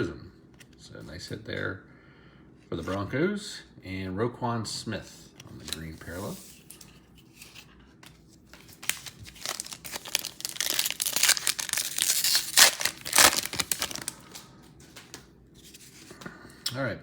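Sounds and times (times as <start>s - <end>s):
foil wrapper crinkling and tearing: 8.5s - 15.1s.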